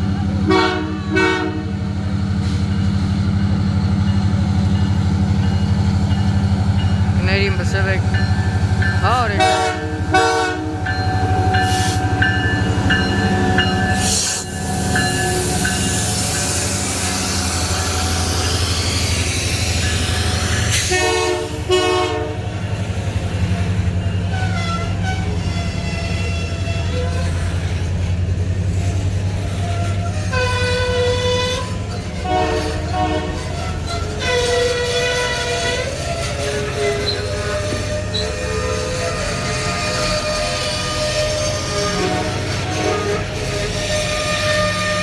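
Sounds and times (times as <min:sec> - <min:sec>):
train rumbling past: 0:00.0 - 0:45.0
train horn blast: 0:00.4 - 0:01.8, 0:09.3 - 0:12.3, 0:20.2 - 0:22.5, 0:24.3 - 0:27.5, 0:29.8 - 0:45.0
crossing bell ringing: 0:02.7 - 0:16.8.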